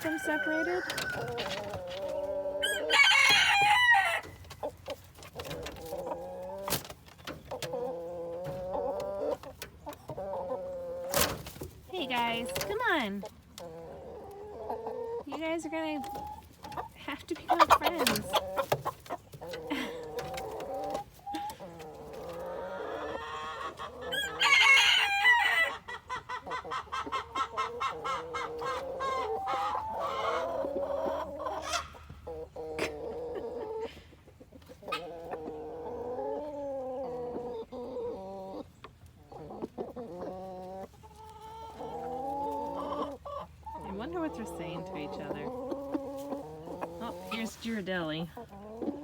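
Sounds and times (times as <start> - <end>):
rooster crowing: 0.0 - 1.6, 2.6 - 4.4, 24.1 - 25.8
chickens clucking: 0.0 - 49.0.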